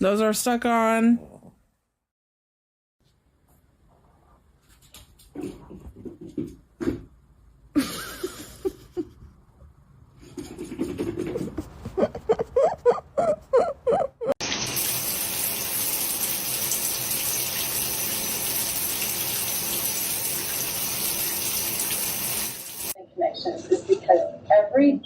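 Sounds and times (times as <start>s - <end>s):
water running from tap: 14.4s - 23.0s.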